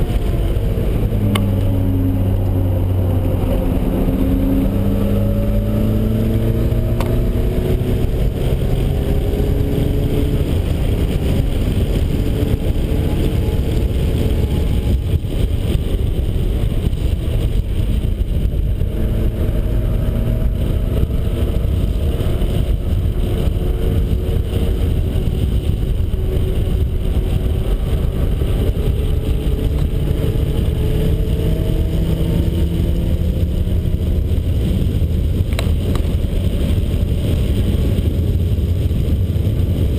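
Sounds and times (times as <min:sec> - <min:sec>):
car engine accelerating: 0:00.0 - 0:39.9
wind and road noise: 0:00.0 - 0:39.9.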